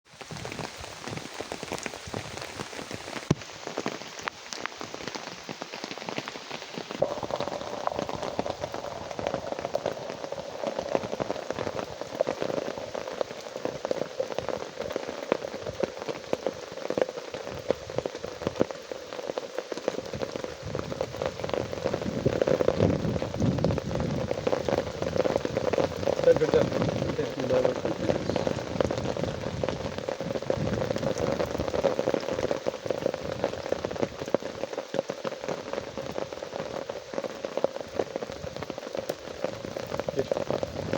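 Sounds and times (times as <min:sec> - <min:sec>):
rain drops hitting a surface: 0:00.0 - 0:40.9.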